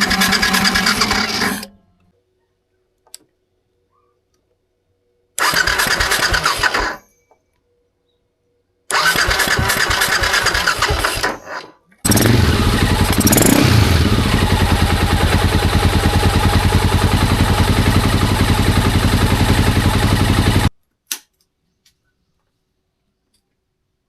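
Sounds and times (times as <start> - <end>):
motorcycle engine idling: 0.0 - 1.6, 12.1 - 20.7.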